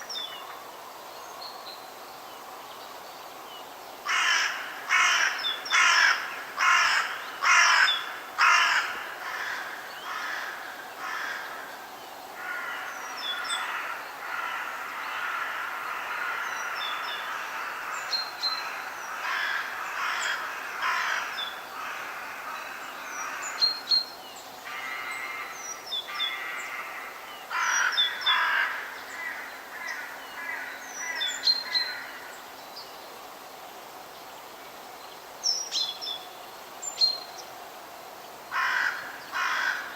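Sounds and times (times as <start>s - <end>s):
crow cawing: 4.1s - 11.7s, 12.4s - 23.6s, 24.7s - 32.3s, 38.5s - 39.9s.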